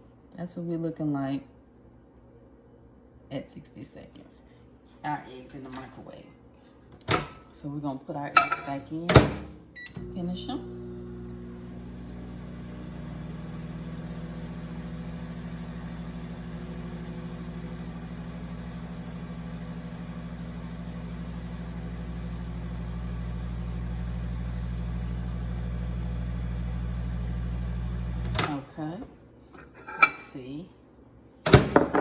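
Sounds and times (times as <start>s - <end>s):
microwave oven humming: 8.9s - 28.6s.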